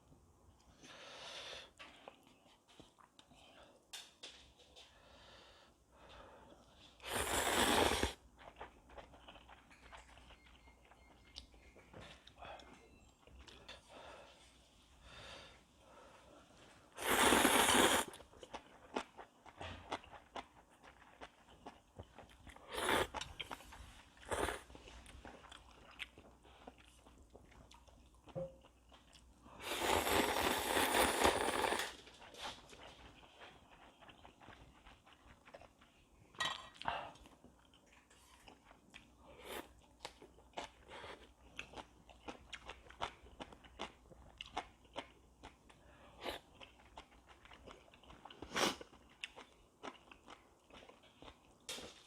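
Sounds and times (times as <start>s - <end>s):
soft chewing: 1.7s - 7.4s, 8.1s - 15.1s, 15.8s - 52.0s
noodles slurped noisily: 7.0s - 8.2s, 17.0s - 18.2s, 29.6s - 32.0s.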